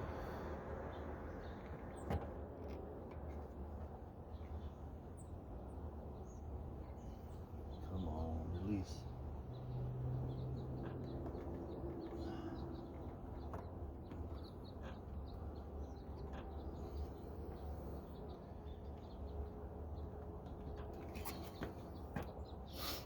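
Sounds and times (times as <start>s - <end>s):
faint bird calls: 12.0s - 18.2s.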